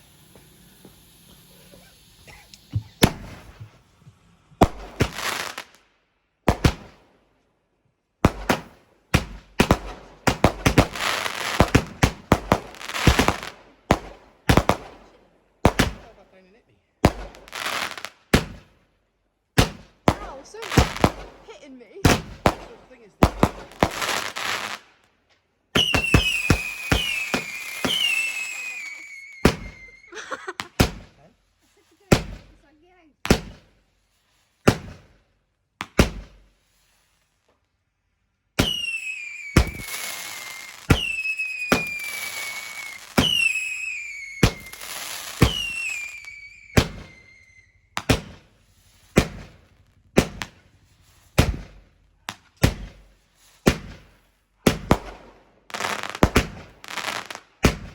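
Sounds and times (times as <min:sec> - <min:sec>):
falling firework whistles: 0:00.0 - 0:05.8, 0:08.5 - 0:15.2, 0:25.7 - 0:32.5, 0:36.0 - 0:37.5, 0:38.5 - 0:52.0
firework bangs: 0:00.0 - 0:05.8, 0:06.4 - 0:07.1, 0:08.2 - 0:16.4, 0:17.0 - 0:18.8, 0:19.5 - 0:25.0, 0:25.7 - 0:37.4, 0:38.4 - 0:57.9.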